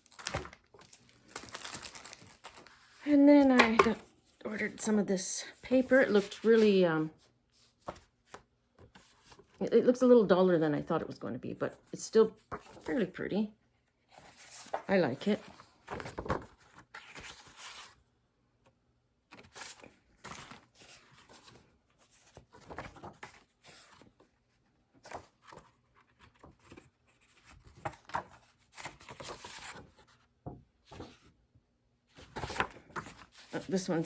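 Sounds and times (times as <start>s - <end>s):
packaging rustling and crinkling: 0.0s - 3.9s.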